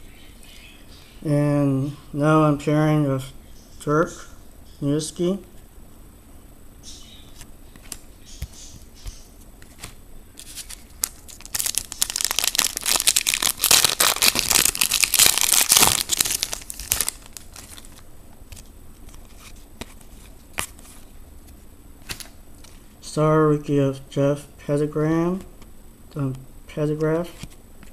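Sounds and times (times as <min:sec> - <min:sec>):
foil wrapper tearing and crinkling: 0:10.4 - 0:18.0.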